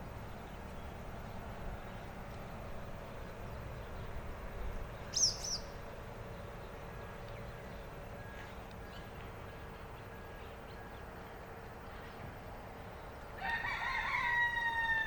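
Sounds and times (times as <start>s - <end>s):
low background rumble: 0.0s - 15.0s
bird chirps: 5.0s - 5.8s.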